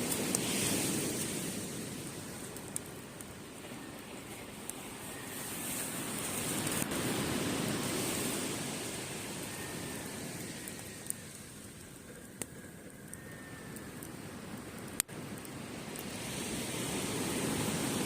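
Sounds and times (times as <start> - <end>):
sea wave washing up beach: 0.0 - 2.4, 4.6 - 10.9, 15.7 - 18.0
campfire crackling: 0.0 - 18.0.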